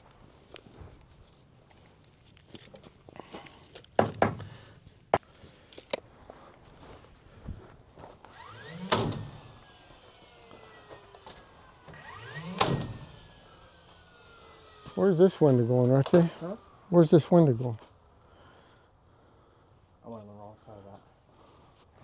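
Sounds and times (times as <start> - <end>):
sharp knocks and thuds: 4.0 - 4.6.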